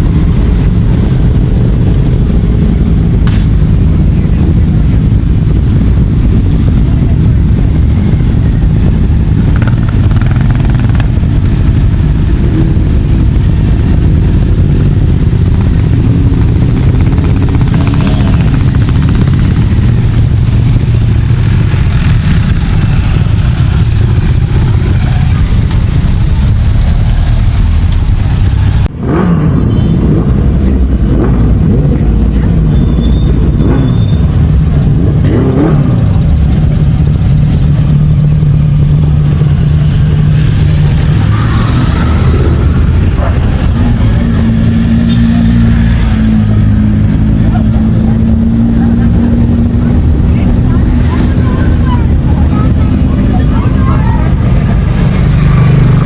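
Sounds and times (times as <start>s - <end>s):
motorcycles riding past revving: 8.1s - 31.6s.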